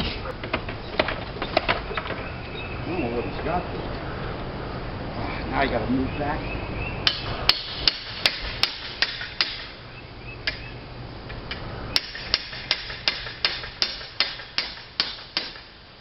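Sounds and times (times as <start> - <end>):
hammer blows: 7.0 - 9.8.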